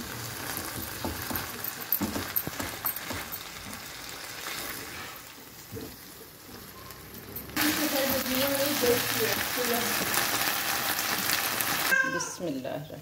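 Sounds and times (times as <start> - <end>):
spatula tapping and scraping pan: 0.6 - 4.0
chicken sizzling in a pan: 3.6 - 12.3.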